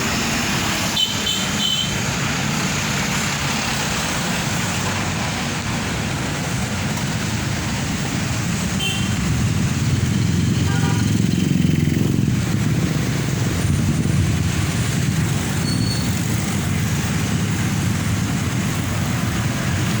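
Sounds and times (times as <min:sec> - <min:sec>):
heavy truck diesel engines: 0:00.0 - 0:20.0
street traffic passing: 0:00.0 - 0:20.0.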